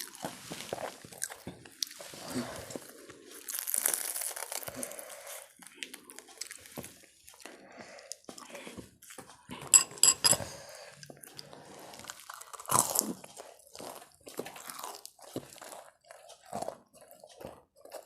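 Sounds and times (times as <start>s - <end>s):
person chewing food: 0.0s - 18.0s
clinks on a plate: 9.7s - 10.4s.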